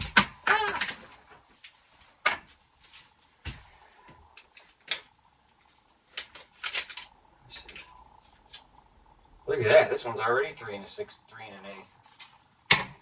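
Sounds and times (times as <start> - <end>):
metal pipe pieces knocking: 0.0 - 1.4, 2.3 - 2.5, 12.7 - 13.0.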